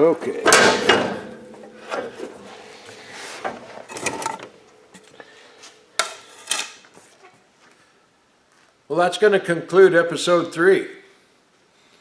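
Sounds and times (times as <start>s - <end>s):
tools and metal parts handled: 0.2s - 5.2s, 6.0s - 7.0s.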